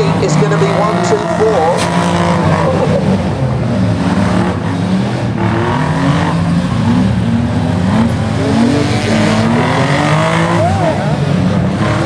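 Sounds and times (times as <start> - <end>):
racing car engines revving: 0.0 - 12.0.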